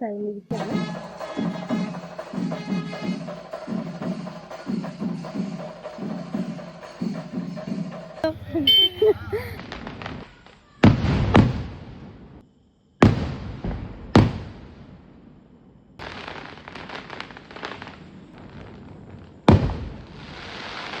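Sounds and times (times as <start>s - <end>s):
firework bangs: 0.5s - 12.4s, 13.0s - 15.2s, 16.0s - 21.0s
firework crackling pops: 9.6s - 12.4s, 13.0s - 15.1s, 16.0s - 21.0s.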